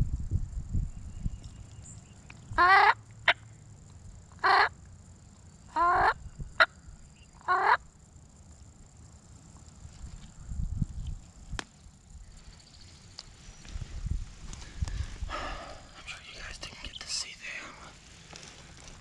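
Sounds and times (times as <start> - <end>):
wild turkey gobbling: 4.4 - 4.7, 5.7 - 6.7.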